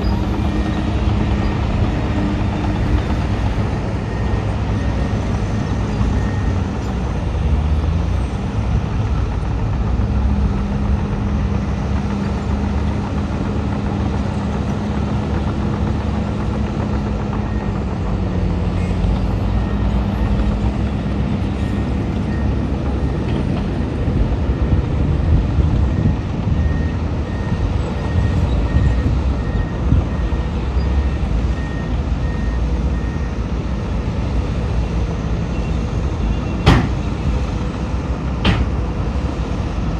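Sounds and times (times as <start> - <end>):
reversing alarm beeping: 0.0 - 7.0, 19.5 - 24.9, 25.7 - 33.5
heavy diesel machinery rumbling: 0.0 - 39.9.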